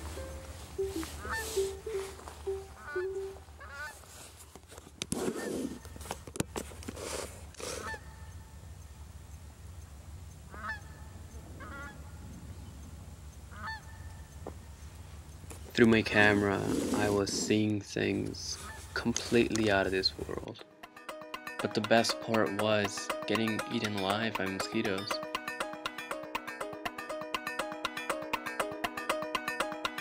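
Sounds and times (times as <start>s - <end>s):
birds calling: 0.1s - 4.0s, 10.3s - 16.7s.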